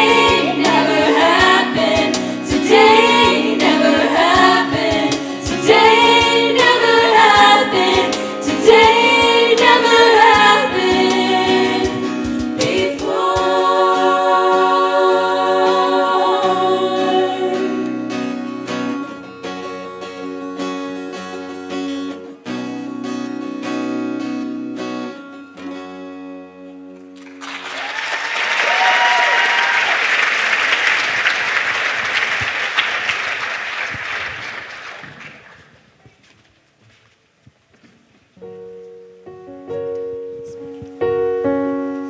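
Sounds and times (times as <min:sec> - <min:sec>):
strummed guitar chords: 0:00.0 - 0:13.5
choir singing: 0:00.0 - 0:19.0
audience applauding and cheering: 0:27.2 - 0:35.8.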